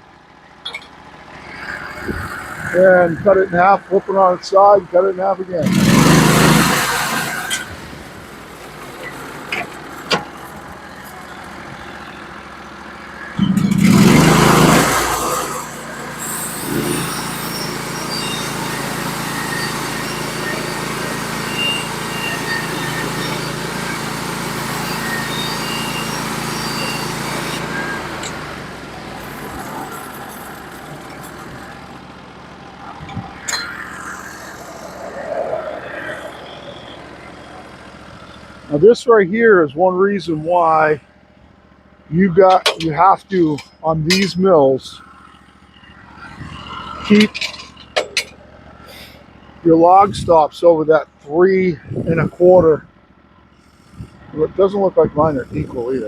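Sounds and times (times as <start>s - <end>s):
sawmill engine running: 0.0s - 56.0s
band saw blade cutting wood: 5.6s - 7.8s, 13.4s - 28.6s, 42.4s - 44.5s.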